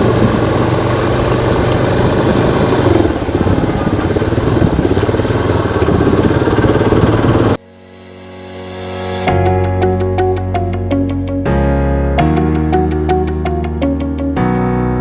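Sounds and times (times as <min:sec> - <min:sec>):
loud dense rushing noise: 0:00.0 - 0:07.6
motorcycle engine running: 0:00.0 - 0:07.6.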